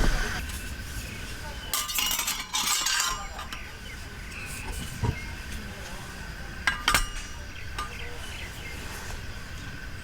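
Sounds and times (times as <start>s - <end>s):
dishes and utensils clinking: 1.7s - 3.7s, 6.6s - 8.4s.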